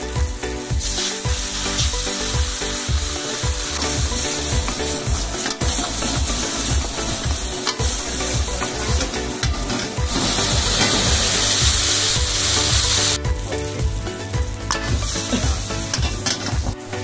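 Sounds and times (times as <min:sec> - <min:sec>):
background music with beat: 0:00.0 - 0:17.0
food sizzling in a wok: 0:00.8 - 0:13.2.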